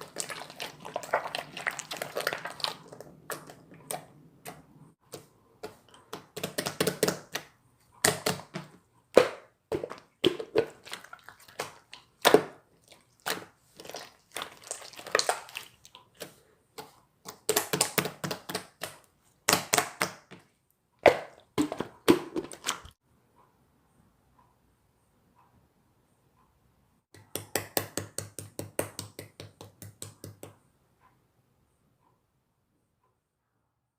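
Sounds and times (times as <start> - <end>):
slime crackling and popping: 13.2 - 15.8.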